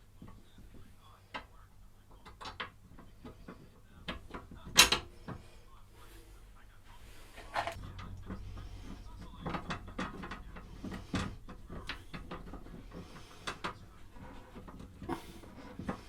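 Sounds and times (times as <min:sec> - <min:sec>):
low steady hum: 0:00.0 - 0:16.0
metal parts clicking and knocking: 0:07.4 - 0:16.0.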